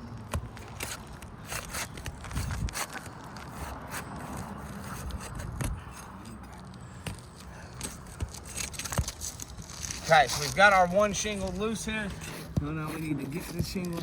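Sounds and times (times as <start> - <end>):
pry bar scraping and clicking: 0.3 - 7.2.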